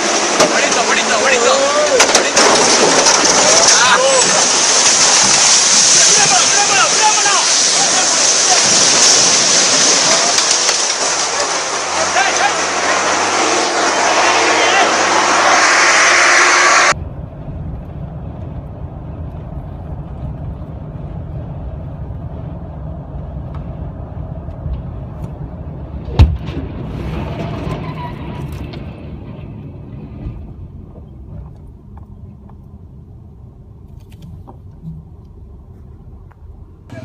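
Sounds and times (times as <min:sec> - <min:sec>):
engine rumbling: 0:00.0 - 0:37.0
loud bang: 0:01.8 - 0:17.0.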